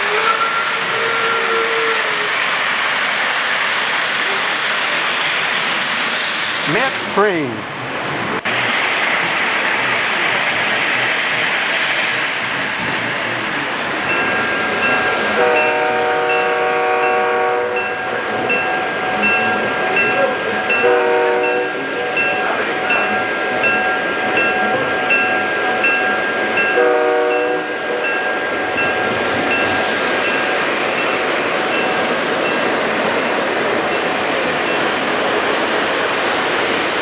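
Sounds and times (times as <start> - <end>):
model train horn: 0.0 - 2.2, 15.3 - 18.0, 20.7 - 22.2, 26.7 - 28.1
trains rolling on track: 0.0 - 37.0
train bell ringing: 14.0 - 32.9.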